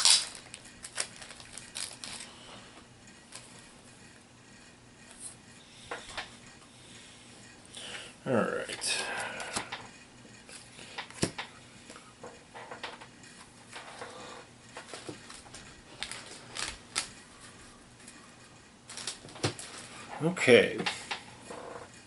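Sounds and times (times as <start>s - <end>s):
plastic pieces clicking and rustling: 0.0s - 2.3s, 18.9s - 19.9s.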